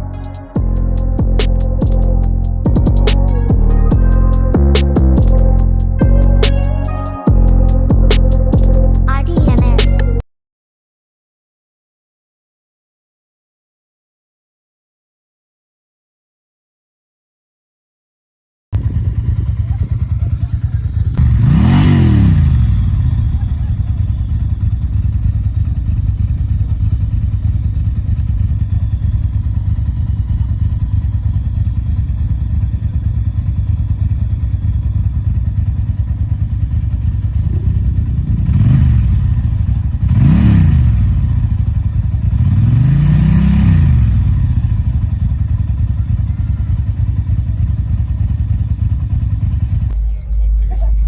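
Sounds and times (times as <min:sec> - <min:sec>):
engine revving: 0:00.0 - 0:09.1, 0:21.1 - 0:24.1, 0:37.6 - 0:41.7, 0:42.3 - 0:45.0
engine idling with exhaust rumble: 0:18.8 - 0:21.5, 0:22.6 - 0:40.1, 0:44.2 - 0:51.0.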